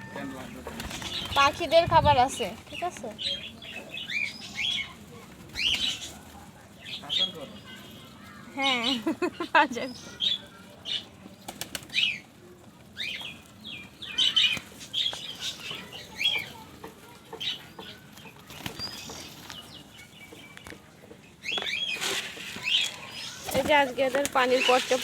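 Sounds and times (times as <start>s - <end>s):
pigeon wings flapping: 0.6s - 3.0s, 11.3s - 12.3s, 17.9s - 19.8s, 21.7s - 25.0s.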